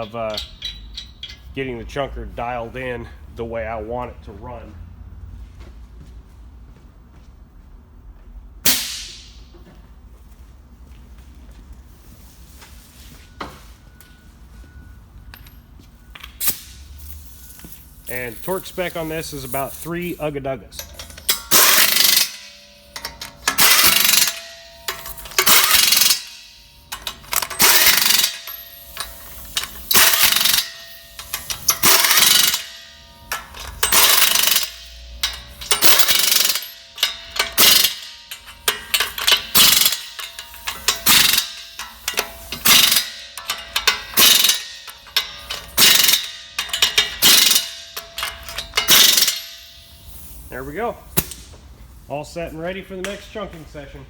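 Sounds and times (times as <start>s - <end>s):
impact wrench hammering: 20.8s - 50.4s, 51.2s - 51.5s.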